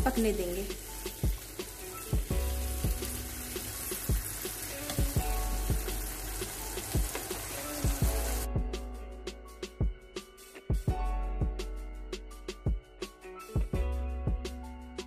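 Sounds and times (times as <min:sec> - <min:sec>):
vegetables sizzling in a wok: 0:00.0 - 0:08.5.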